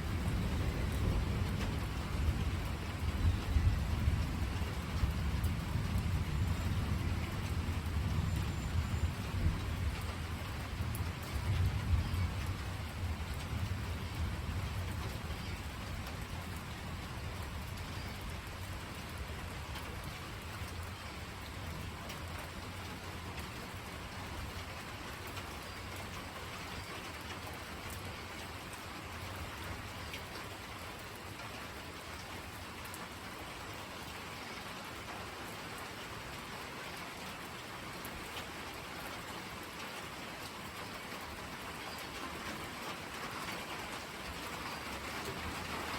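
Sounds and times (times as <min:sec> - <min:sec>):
thunder rumbling: 0:00.0 - 0:20.8
steady rain: 0:00.0 - 0:45.9.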